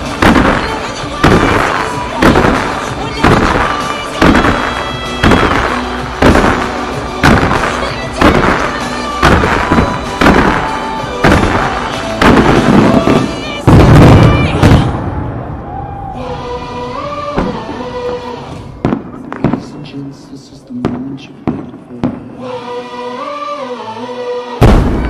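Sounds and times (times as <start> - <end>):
music with steady pulse: 0.0 - 14.1
fireworks bursting: 0.0 - 15.5, 16.4 - 23.3.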